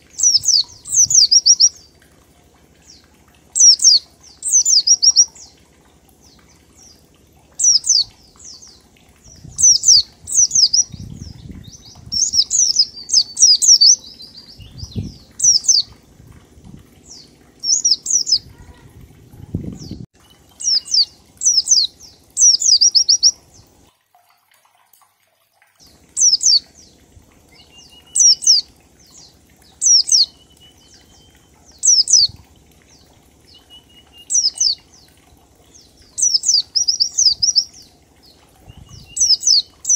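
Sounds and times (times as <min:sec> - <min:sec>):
bird singing rapid high notes: 0:00.2 - 0:01.9, 0:03.6 - 0:05.5, 0:07.6 - 0:08.7, 0:09.3 - 0:16.0, 0:17.1 - 0:18.7, 0:20.6 - 0:23.4, 0:27.5 - 0:32.3, 0:33.5 - 0:34.8, 0:38.7 - 0:39.9.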